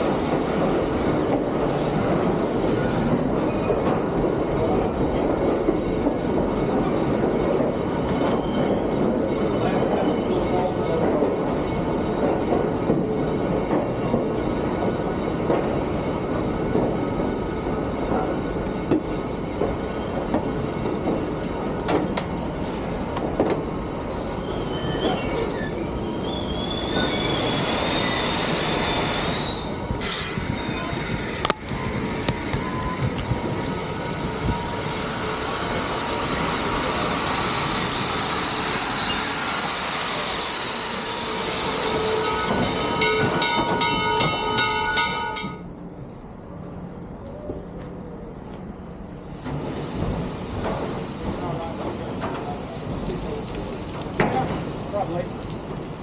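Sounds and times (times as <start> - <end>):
train wheels rumbling and clattering: 0.0 - 56.0
high wavering wheel squeal: 24.0 - 45.4.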